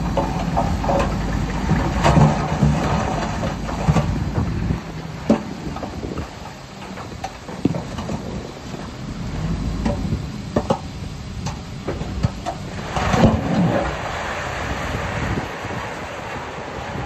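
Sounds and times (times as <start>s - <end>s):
heavy machinery rumbling: 0.0s - 17.0s.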